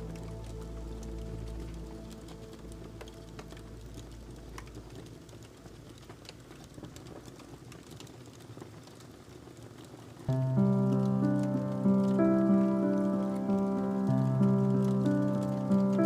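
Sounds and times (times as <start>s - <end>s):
soft music: 0.0s - 6.3s, 10.3s - 16.0s
wood fire crackling: 0.0s - 16.0s.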